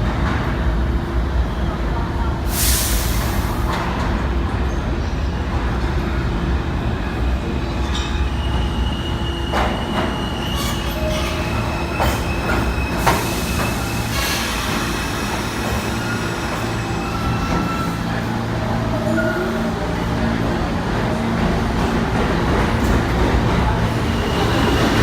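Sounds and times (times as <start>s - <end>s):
subway train rumbling: 0.0s - 25.0s
high wheel squeal: 7.4s - 18.2s.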